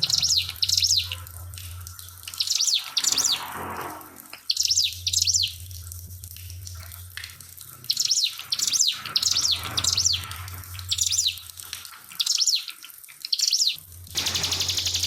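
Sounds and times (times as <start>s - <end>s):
trickling water: 0.0s - 15.0s
small bird singing high notes: 13.4s - 15.0s
fast-pulsing hiss: 14.2s - 15.0s.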